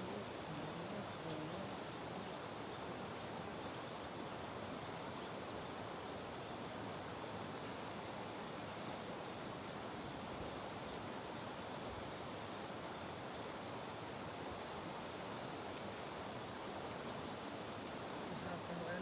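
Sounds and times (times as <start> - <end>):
river water flowing: 0.0 - 19.0.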